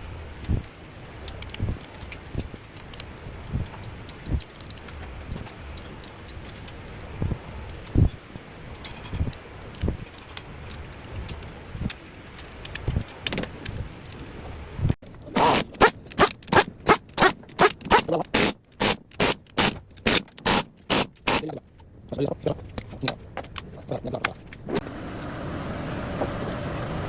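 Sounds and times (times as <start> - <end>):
hand tools clicking and knocking: 1.2 - 7.0, 8.7 - 14.3, 15.1 - 24.6.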